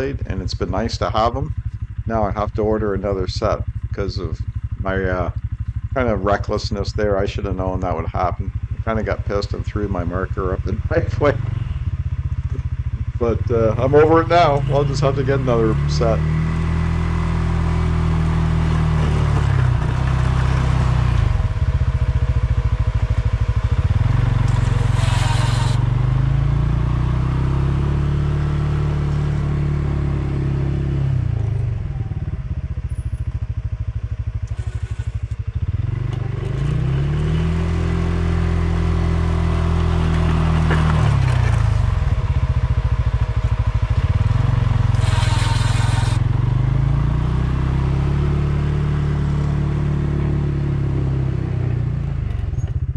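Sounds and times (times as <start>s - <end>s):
atv engine revving under load: 0.0s - 33.1s, 34.3s - 52.6s
plow blade scraping: 24.4s - 25.9s, 34.5s - 35.4s, 44.9s - 46.3s.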